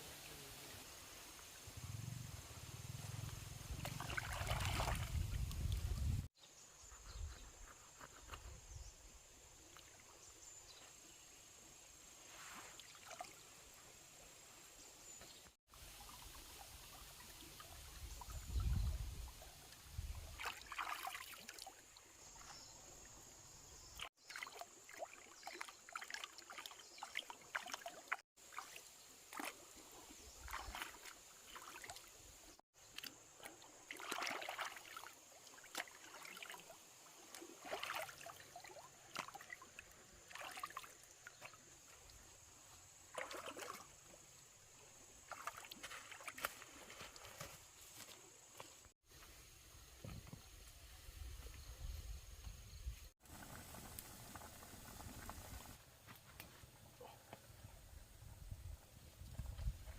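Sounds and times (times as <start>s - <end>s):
water trickling and splashing: 3.6s - 6.3s, 12.4s - 14.5s, 15.7s - 51.6s.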